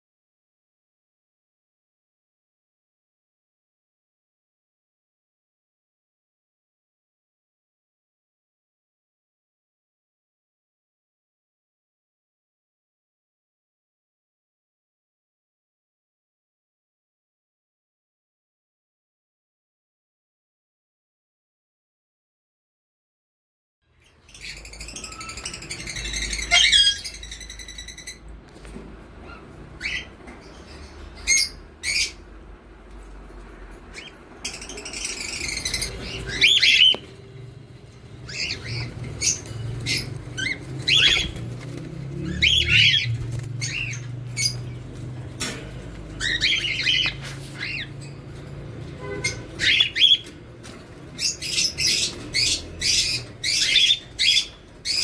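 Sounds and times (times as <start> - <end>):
parrots squawking: 24.4 - 28.2, 29.2 - 32.3, 33.9 - 37.2, 37.8 - 55.0.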